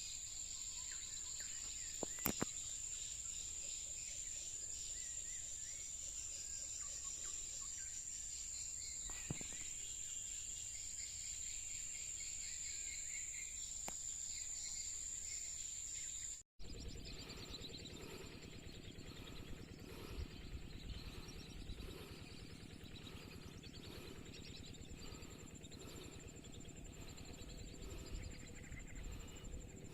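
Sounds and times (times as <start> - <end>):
high-pitched insect drone: 0.0 - 29.9
pulsing background: 16.6 - 29.9.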